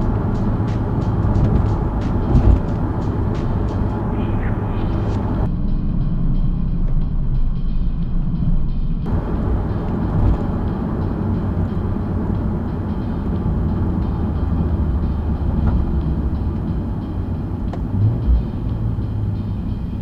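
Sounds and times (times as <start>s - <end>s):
car engine cruising: 0.0s - 5.5s, 9.1s - 20.0s
road and tyre noise: 0.0s - 5.6s, 9.1s - 20.0s.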